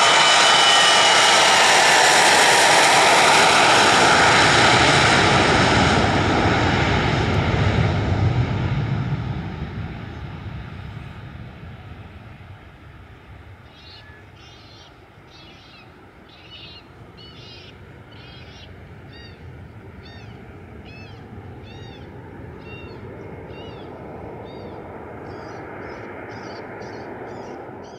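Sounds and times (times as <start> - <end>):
bird calling: 13.6 - 27.9.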